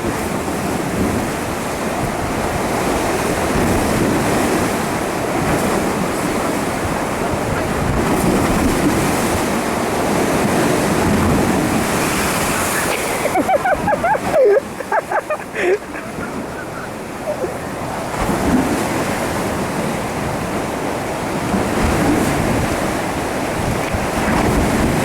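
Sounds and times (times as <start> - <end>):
strong wind on microphone: 0.0 - 25.0
surf crashing: 0.0 - 25.0.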